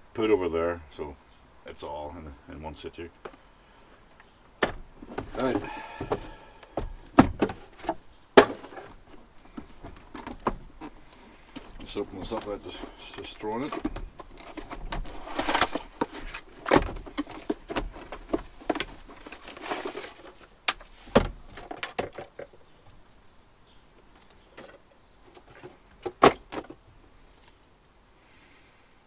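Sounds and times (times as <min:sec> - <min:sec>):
cardboard packaging rustling: 0:05.0 - 0:22.3.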